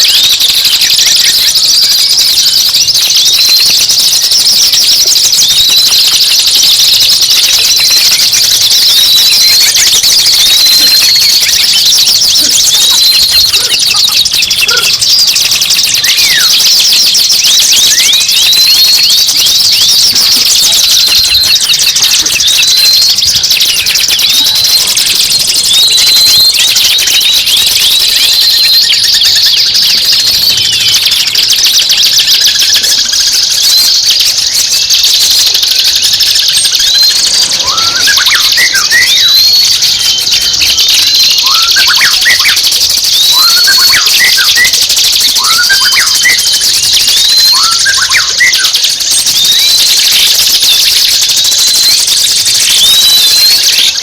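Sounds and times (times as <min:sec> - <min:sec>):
low rising bird whistles: 0:00.0 - 0:32.8, 0:36.0 - 0:50.3, 0:51.0 - 0:54.0
buzzy bird chatter: 0:00.0 - 0:54.0
bird whistle hooked upward: 0:07.5 - 0:24.9, 0:36.9 - 0:40.6, 0:41.2 - 0:42.6, 0:43.2 - 0:44.7, 0:45.4 - 0:48.6.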